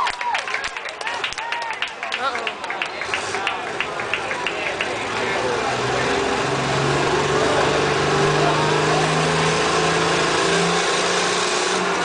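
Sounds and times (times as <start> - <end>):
tractor engine revving hard: 2.8 - 12.0.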